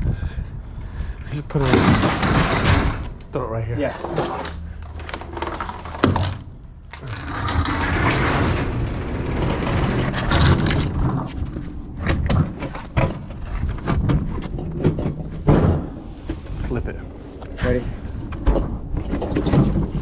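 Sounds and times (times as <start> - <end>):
sharp knocks and bumps: 1.5 - 3.2, 7.2 - 16.5, 18.2 - 20.0
freezer scraping across floor: 6.9 - 11.7.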